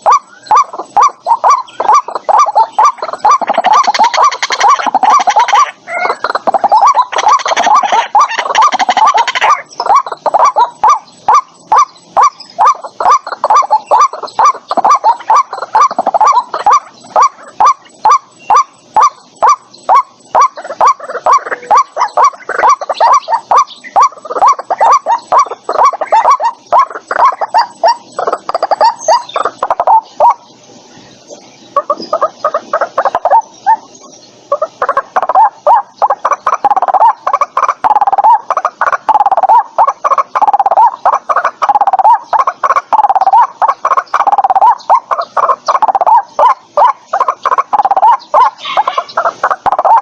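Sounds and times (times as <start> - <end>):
waterhen calling: 0.0 - 50.0.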